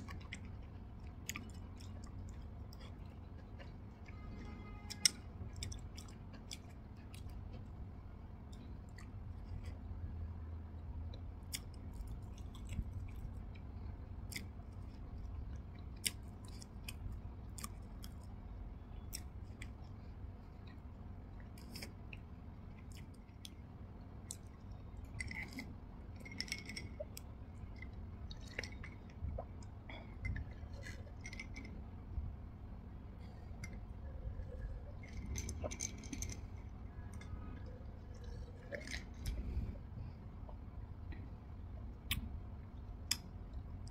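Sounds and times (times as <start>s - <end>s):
chewing soft cake: 0.0s - 43.9s
sipping juice: 33.2s - 41.2s.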